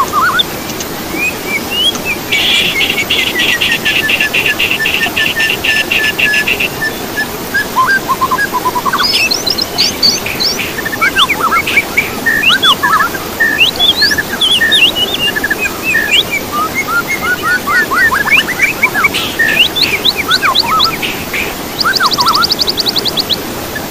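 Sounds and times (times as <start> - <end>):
songbird singing: 0.0 - 23.9
buzzy bird trill: 1.2 - 7.0, 8.2 - 23.3
background hiss: 8.2 - 16.2, 18.6 - 23.3.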